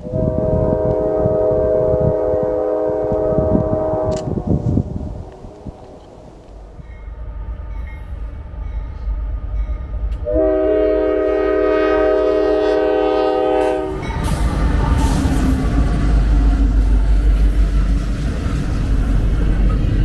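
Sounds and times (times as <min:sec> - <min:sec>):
locomotive air horn: 0:00.0 - 0:06.2, 0:10.2 - 0:16.9
train rumbling past: 0:00.0 - 0:20.0.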